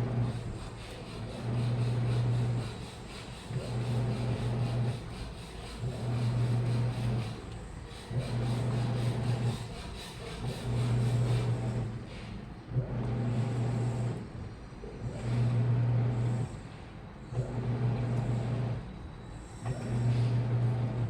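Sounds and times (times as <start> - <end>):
washing machine drum churning: 0.0 - 14.0
washing machine motor humming: 0.0 - 21.0.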